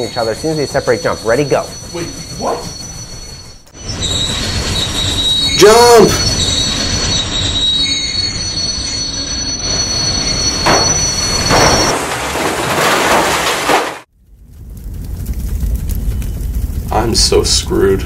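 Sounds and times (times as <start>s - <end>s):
train wheels squealing: 0.0s - 12.0s
train rumble: 0.0s - 12.9s
train crashing: 0.0s - 14.1s.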